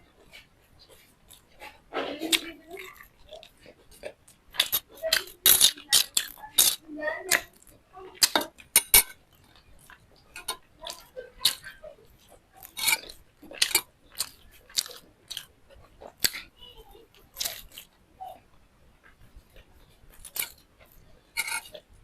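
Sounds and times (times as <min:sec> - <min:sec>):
crisp bites and chewing crunches: 0:12.3 - 0:16.4.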